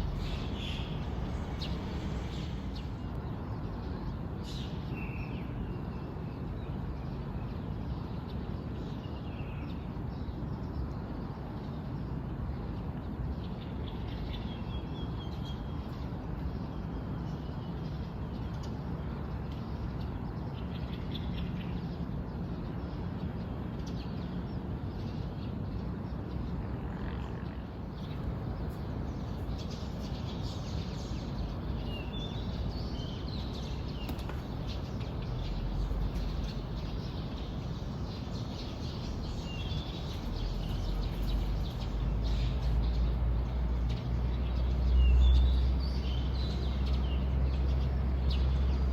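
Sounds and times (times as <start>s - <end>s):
low rumble: 0.0s - 3.1s
small birds chirping: 0.0s - 5.8s, 27.8s - 48.9s.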